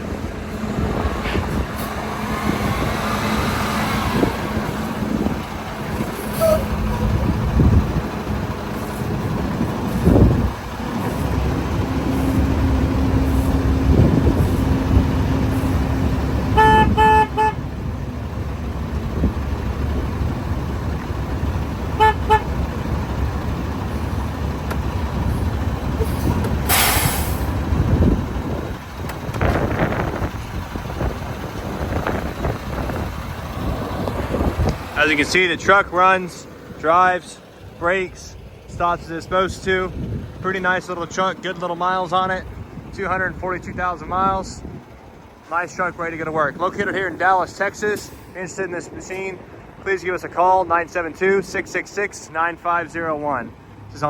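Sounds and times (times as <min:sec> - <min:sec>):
truck engine rumble: 0:00.0 - 0:54.0
truck horn toots: 0:00.5 - 0:04.7, 0:11.0 - 0:17.9, 0:21.8 - 0:22.9
air hiss: 0:26.1 - 0:27.5.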